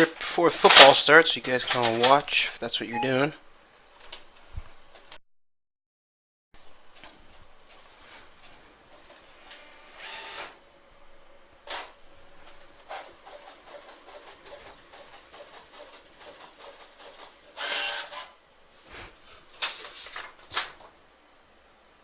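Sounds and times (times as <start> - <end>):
printer rustles and clicks: 0.6 - 2.3, 19.5 - 21.0
sharp printer clicks: 12.9 - 18.3
paper rustle: 19.3 - 21.0.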